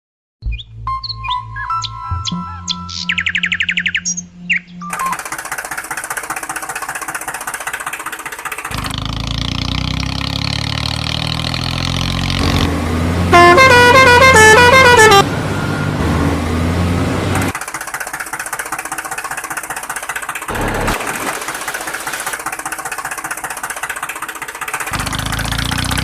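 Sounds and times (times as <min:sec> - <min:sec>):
truck engine running: 0:04.9 - 0:26.0
musical horn playing a tune: 0:13.3 - 0:15.9.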